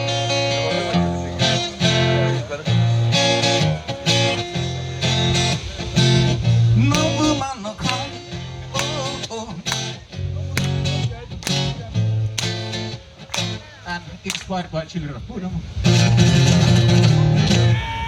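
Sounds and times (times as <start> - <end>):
guitar chords strummed: 0.0 - 13.6.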